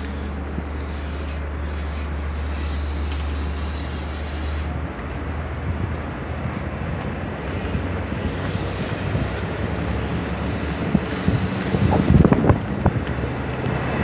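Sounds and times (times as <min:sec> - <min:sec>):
train passing close by: 0:00.0 - 0:14.0
wind on the microphone: 0:05.5 - 0:14.0.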